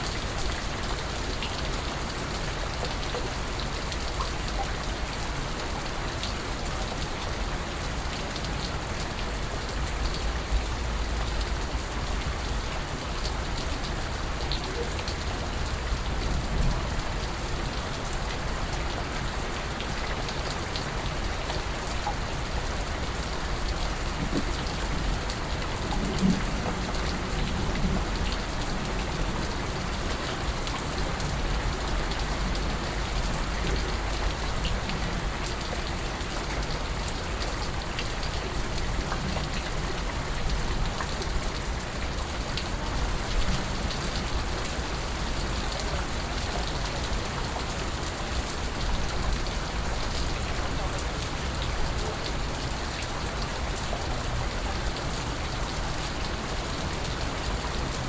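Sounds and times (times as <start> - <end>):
raindrops dripping on a surface: 0.0 - 58.0
steady rain falling: 0.0 - 58.0.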